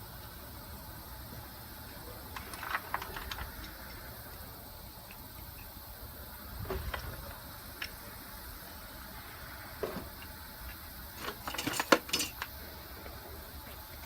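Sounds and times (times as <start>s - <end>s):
steady low hum: 0.0s - 14.0s
hand tools clicking: 10.1s - 12.6s
tools clinking and knocking: 11.2s - 12.5s.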